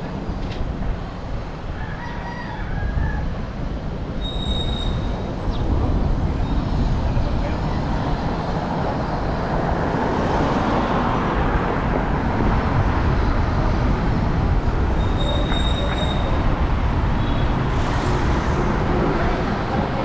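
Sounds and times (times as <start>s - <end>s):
road traffic noise: 0.0s - 20.0s
high-pitched squeal: 14.8s - 16.6s.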